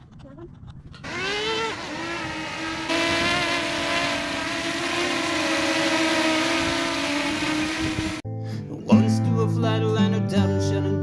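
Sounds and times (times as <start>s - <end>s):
drone propellers buzzing: 1.0s - 8.2s.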